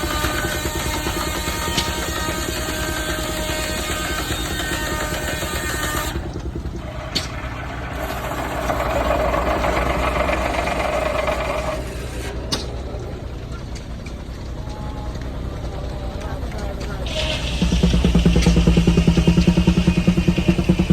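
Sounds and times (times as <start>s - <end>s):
steam engine pulsing beat: 15.3s - 20.9s.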